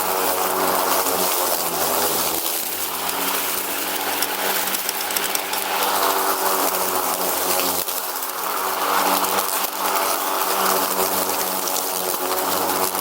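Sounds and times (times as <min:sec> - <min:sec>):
constant rushing noise: 0:00.0 - 0:13.0
riding lawn mower engine running: 0:00.0 - 0:13.0.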